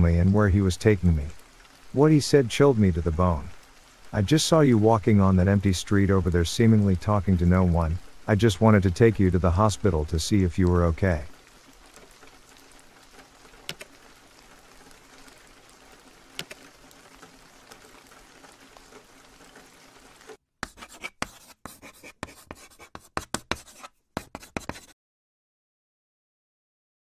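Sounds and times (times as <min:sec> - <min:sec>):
soft steady rain: 0:00.0 - 0:24.9
faint clicks: 0:13.2 - 0:14.0, 0:16.3 - 0:19.6
sharp irregular scratching clicks: 0:13.6 - 0:14.0, 0:16.4 - 0:17.8.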